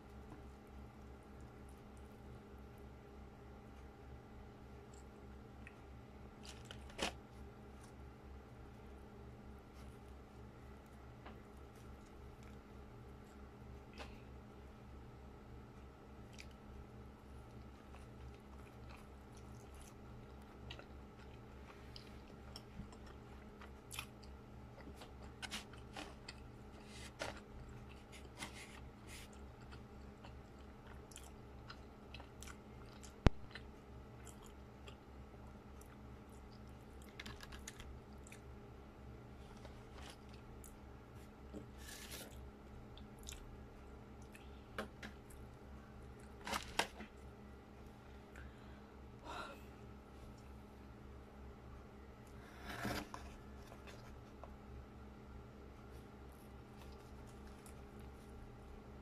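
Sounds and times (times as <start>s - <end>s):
low steady hum: 0.0s - 59.0s
person chewing food: 4.8s - 8.0s, 16.2s - 16.7s, 17.4s - 38.5s, 39.4s - 48.5s, 56.7s - 58.4s.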